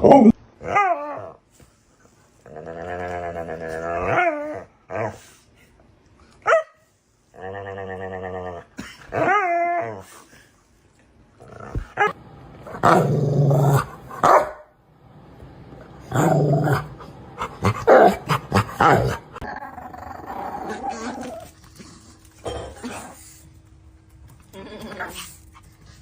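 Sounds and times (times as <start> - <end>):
dog growling and yowling: 0.0 - 1.4, 2.4 - 5.3, 7.4 - 10.2, 11.4 - 14.4, 16.0 - 23.2
dog barking: 6.5 - 6.8, 14.2 - 14.7.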